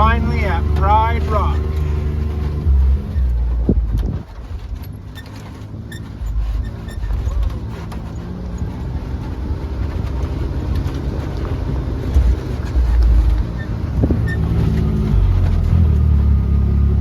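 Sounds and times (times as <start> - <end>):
vehicle engine running at low speed: 0.0 - 17.0
wind buffeting microphone: 2.1 - 5.0, 6.2 - 15.8.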